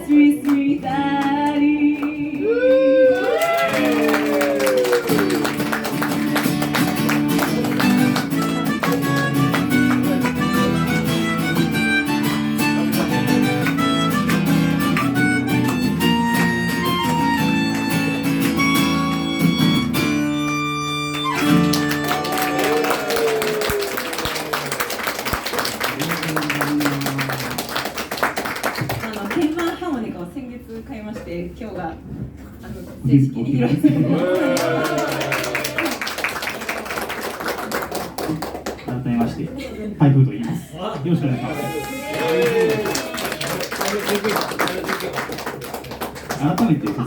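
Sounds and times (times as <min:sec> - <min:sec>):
people clapping: 0:00.0 - 0:30.2, 0:34.0 - 0:39.5, 0:41.0 - 0:47.0
strummed acoustic guitar: 0:05.6 - 0:22.3
melodica melody: 0:08.4 - 0:22.3.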